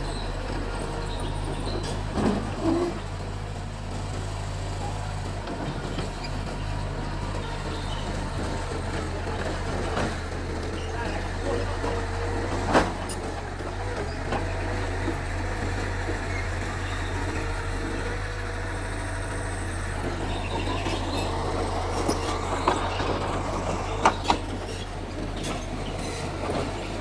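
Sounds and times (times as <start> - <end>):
bulldozer diesel engine humming: 0.0 - 27.0.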